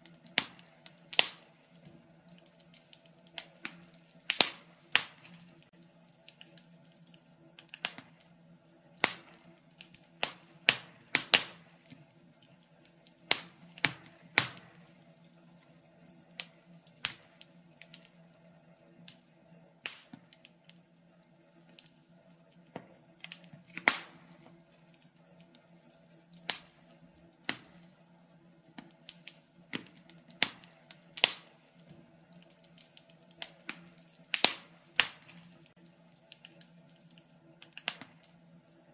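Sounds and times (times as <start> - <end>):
faint steady hum: 0.0 - 38.9
wood fire crackling and popping: 0.0 - 38.9.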